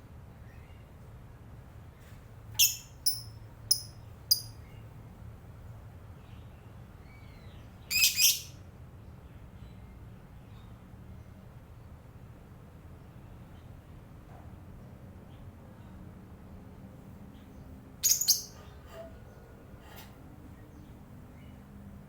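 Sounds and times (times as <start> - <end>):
lovebird calling: 2.6 - 4.5, 7.9 - 8.5, 18.0 - 18.7.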